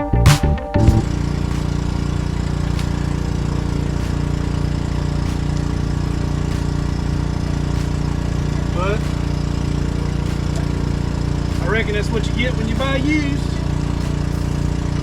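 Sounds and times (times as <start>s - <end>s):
background music: 0.0s - 1.9s
engine idling: 0.8s - 15.0s.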